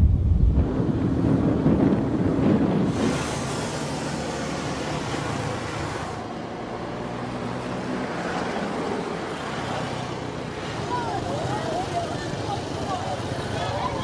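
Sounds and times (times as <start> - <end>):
road traffic rumble: 0.0 - 14.0
wind hiss on microphone: 1.8 - 6.1.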